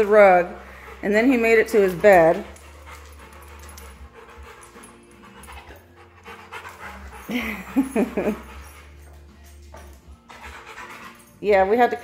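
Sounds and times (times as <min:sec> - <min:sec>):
dog vocal sounds: 0:00.0 - 0:09.1
dog panting: 0:00.0 - 0:12.0.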